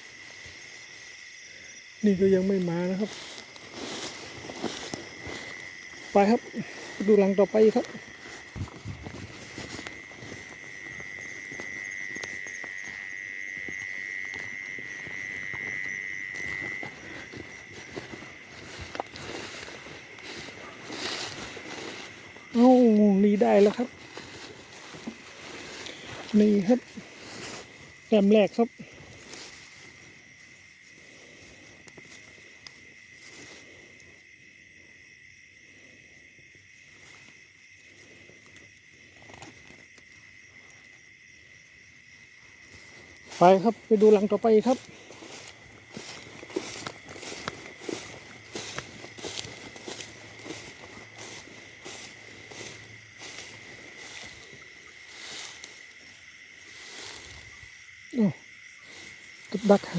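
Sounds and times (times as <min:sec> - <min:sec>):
rustling in vegetation: 0:00.0 - 0:34.2, 0:36.6 - 0:59.9
insect trilling: 0:00.0 - 0:59.9
light footsteps: 0:03.0 - 0:28.1, 0:42.7 - 0:56.1.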